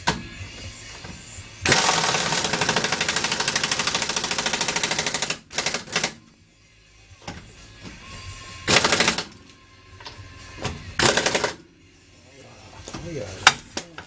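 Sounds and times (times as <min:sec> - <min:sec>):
impact wrench rattling: 0:01.7 - 0:06.2, 0:11.0 - 0:11.6.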